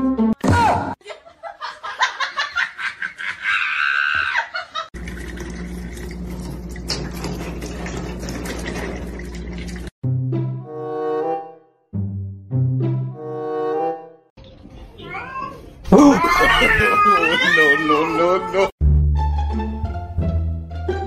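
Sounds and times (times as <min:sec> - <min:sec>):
person laughing: 0:01.0 - 0:04.9, 0:15.9 - 0:18.6
water dispenser humming: 0:05.0 - 0:09.9
water pouring into a glass: 0:05.0 - 0:09.9.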